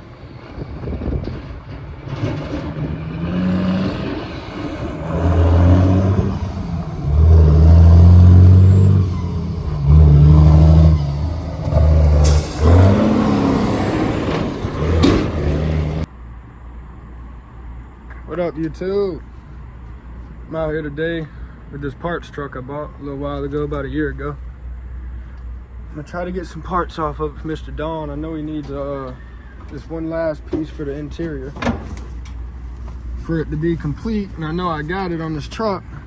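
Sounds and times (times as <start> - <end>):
heavy truck engine revving: 0.0 - 16.1, 25.3 - 36.0.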